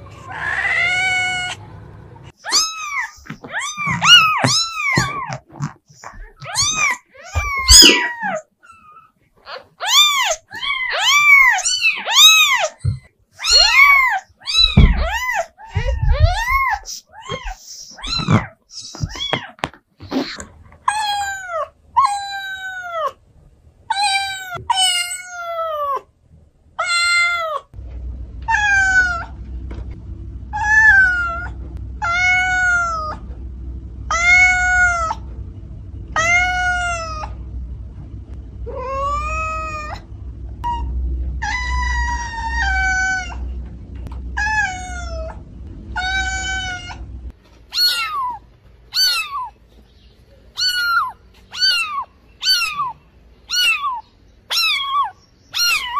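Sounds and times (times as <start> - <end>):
cat meowing: 2.4 - 19.6, 47.7 - 49.6, 50.6 - 55.9.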